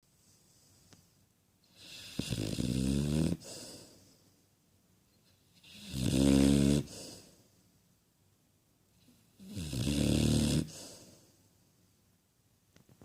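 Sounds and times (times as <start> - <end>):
dog snoring: 1.7 - 3.9, 5.6 - 7.3, 9.4 - 11.2.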